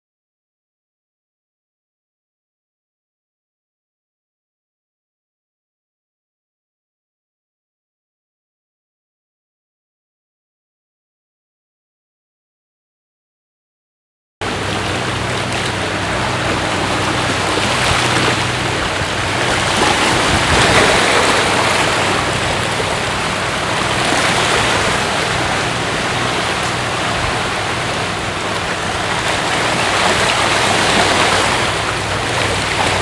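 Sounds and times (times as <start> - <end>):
steady rushing noise: 14.4 - 33.0.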